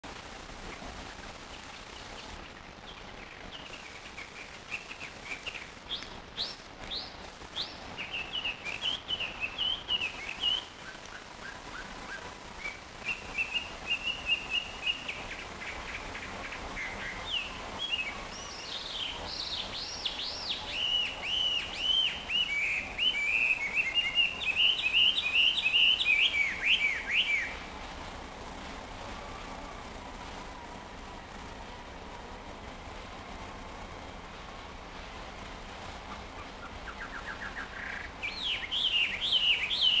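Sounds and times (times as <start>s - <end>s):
bird whistling song: 2.0s - 27.6s, 36.4s - 40.0s.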